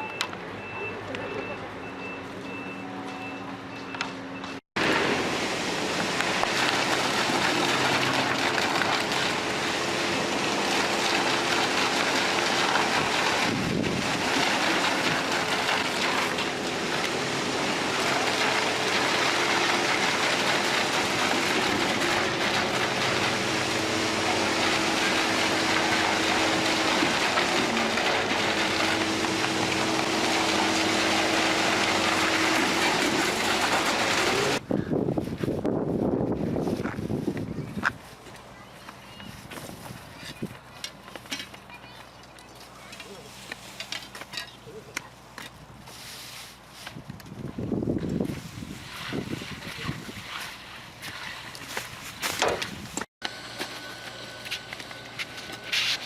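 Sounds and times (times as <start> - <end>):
reversing alarm beeping: 0.0 - 4.6
heavy construction machinery running: 0.0 - 34.7, 53.2 - 56.0.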